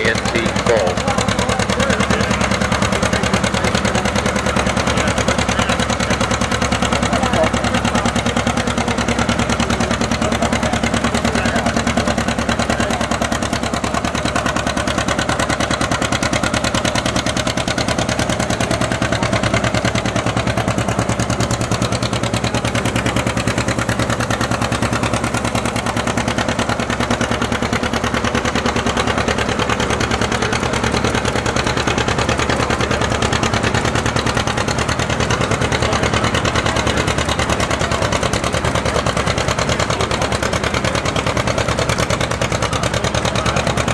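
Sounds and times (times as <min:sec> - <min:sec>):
tractor engine pulsing: 0:00.0 - 0:43.9.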